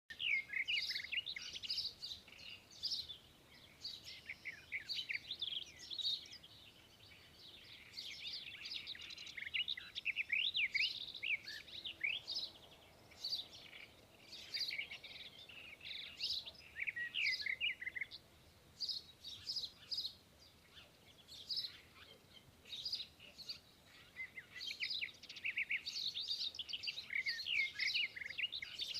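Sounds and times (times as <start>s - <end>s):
birds chirping and calling: 0.1s - 28.9s.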